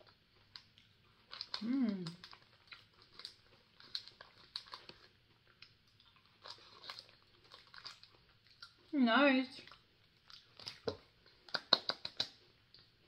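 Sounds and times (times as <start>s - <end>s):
mouth chewing clicks and smacks: 9.6s - 13.0s.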